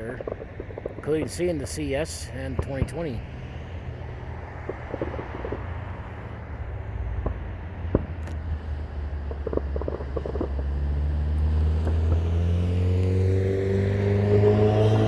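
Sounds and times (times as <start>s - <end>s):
distant fireworks popping: 0.0s - 13.2s
traffic rumble: 0.0s - 15.0s
vehicle engine accelerating: 7.2s - 15.0s.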